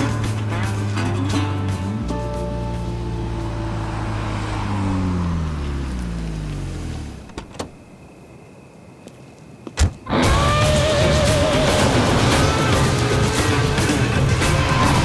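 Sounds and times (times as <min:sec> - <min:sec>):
music: 0:00.0 - 0:04.2, 0:10.1 - 0:15.0
car engine winding down: 0:00.0 - 0:07.8, 0:10.1 - 0:15.0.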